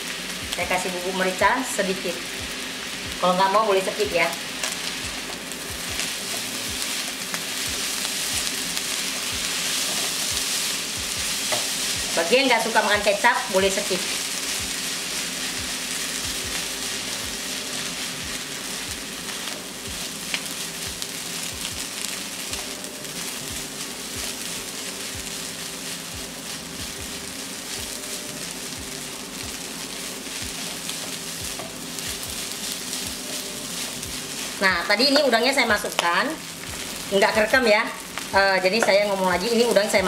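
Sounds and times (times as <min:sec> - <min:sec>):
rice sizzling in a wok: 0:00.0 - 0:40.0
spatula scraping a wok: 0:04.6 - 0:36.0.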